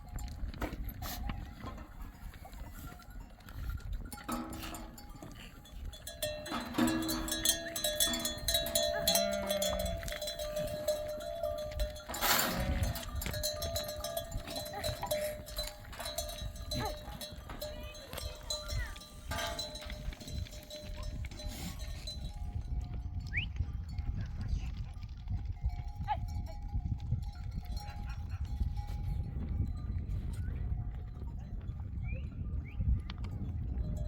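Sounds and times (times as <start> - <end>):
animal bells clinking: 0.0 - 34.0
sheep and goats bleating: 4.6 - 19.8.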